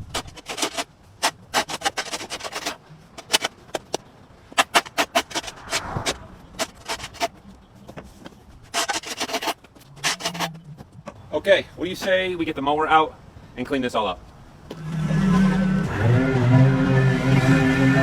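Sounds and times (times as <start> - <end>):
shovel scraping on concrete: 0.0 - 7.4, 8.7 - 10.6.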